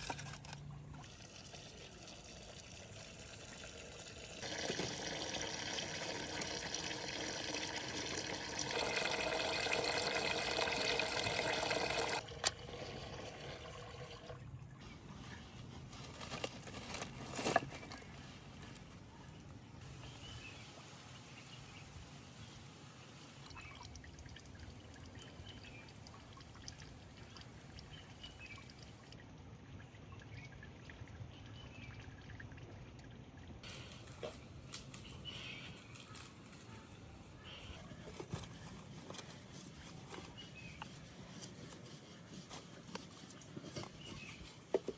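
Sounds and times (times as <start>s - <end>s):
water pouring into container: 1.0s - 14.7s.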